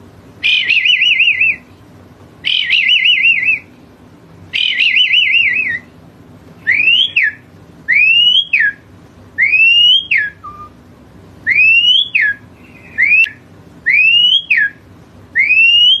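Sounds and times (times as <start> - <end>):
starling whistling call: 0.4 - 1.7, 2.4 - 3.8, 4.5 - 6.0, 6.6 - 10.8, 11.5 - 14.8, 15.4 - 16.0.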